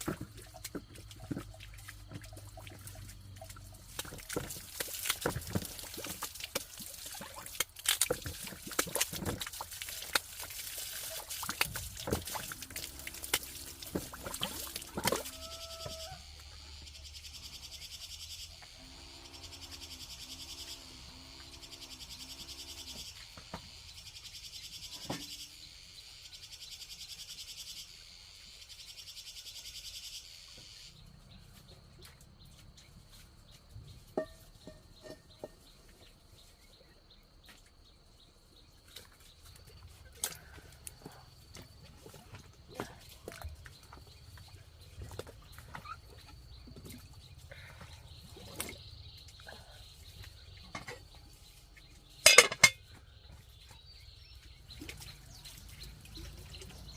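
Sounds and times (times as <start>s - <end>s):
insects buzzing: 11.9s - 26.6s
low animal call: 12.4s - 16.8s.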